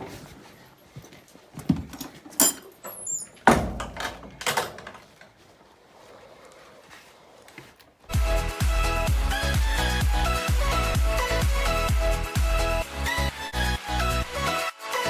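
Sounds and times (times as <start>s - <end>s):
background music with steady beat: 8.1s - 15.0s.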